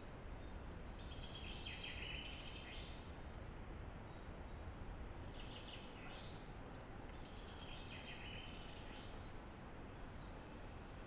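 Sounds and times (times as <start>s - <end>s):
songbird singing: 1.1s - 3.0s, 7.1s - 9.3s.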